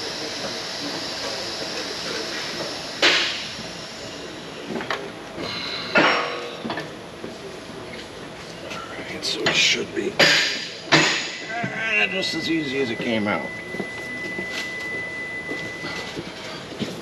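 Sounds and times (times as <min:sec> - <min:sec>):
sharp metal clank: 0:10.2 - 0:11.5.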